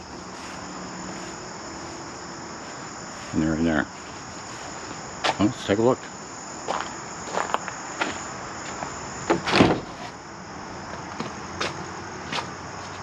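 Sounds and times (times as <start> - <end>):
footsteps: 0.0 - 9.0
insects chirring: 0.0 - 13.0.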